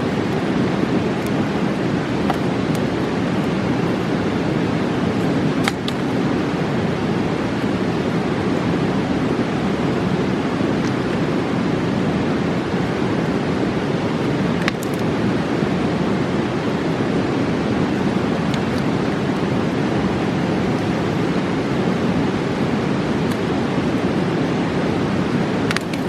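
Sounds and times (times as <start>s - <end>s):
campfire popping: 0.0s - 9.1s, 14.1s - 15.1s
fast river rushing: 0.0s - 26.0s.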